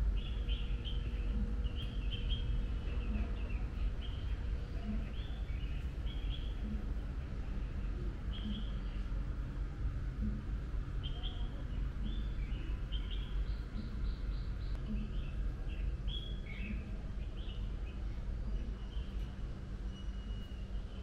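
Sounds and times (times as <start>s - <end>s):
small birds chirping: 0.0s - 9.4s, 10.2s - 21.0s
low background rumble: 0.0s - 21.0s.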